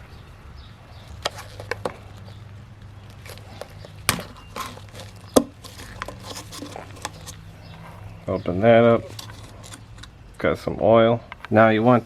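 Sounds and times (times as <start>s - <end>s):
handling knocks and clicks: 1.1s - 10.2s.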